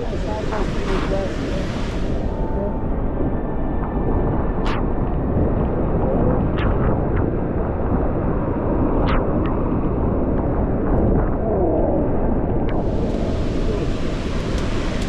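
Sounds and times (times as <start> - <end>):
waterfall roaring: 0.0 - 2.8, 12.7 - 15.0
wind buffeting microphone: 0.0 - 15.0.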